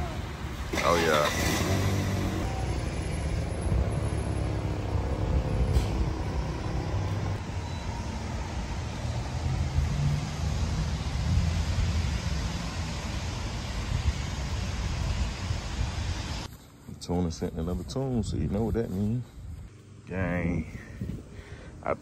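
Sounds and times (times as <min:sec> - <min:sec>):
car engine rumbling: 0:00.0 - 0:16.5.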